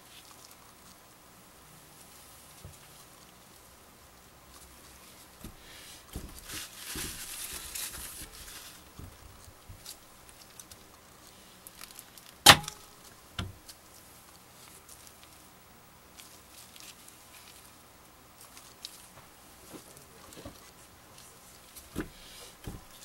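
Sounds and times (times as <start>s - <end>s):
light rustling: 4.5s - 15.4s, 18.4s - 23.0s
sharp knock: 12.5s - 12.8s.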